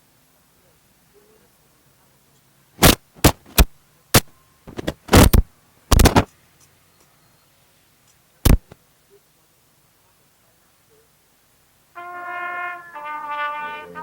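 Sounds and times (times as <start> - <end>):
loud thumps and knocks: 2.8 - 6.3, 8.5 - 8.8.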